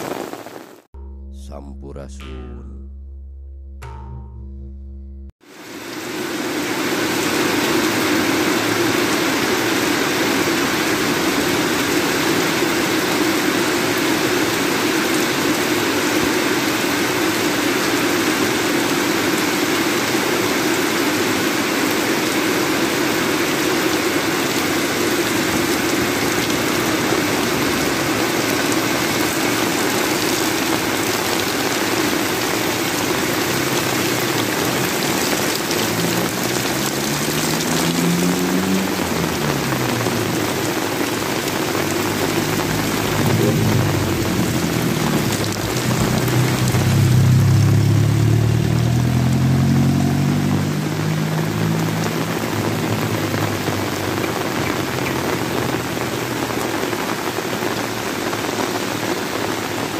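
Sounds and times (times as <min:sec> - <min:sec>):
heavy rain on roofs and road: 0:00.0 - 0:00.9, 0:05.4 - 0:59.9.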